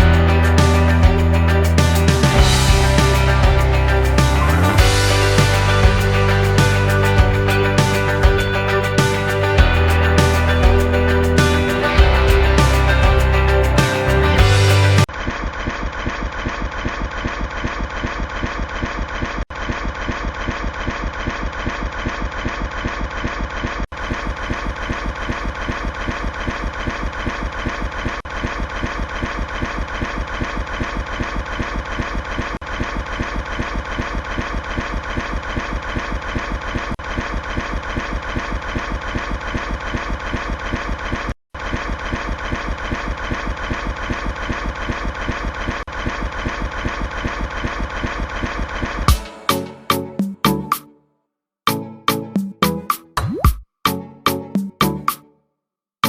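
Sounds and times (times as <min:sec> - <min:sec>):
engine chugging: 0:00.0 - 0:15.1.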